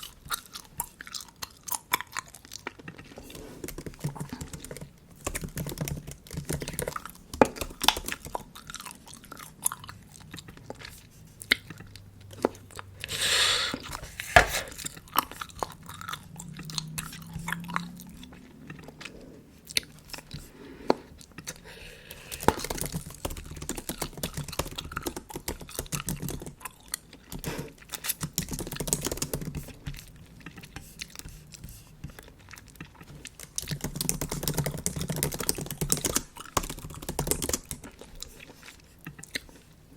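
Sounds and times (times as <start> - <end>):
gum chewing clicks and smacks: 0.0 - 39.9
hissing: 13.1 - 14.8.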